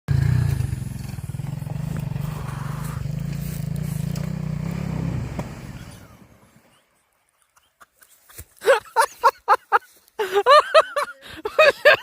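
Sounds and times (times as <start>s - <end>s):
motorcycle engine running: 0.1s - 6.6s.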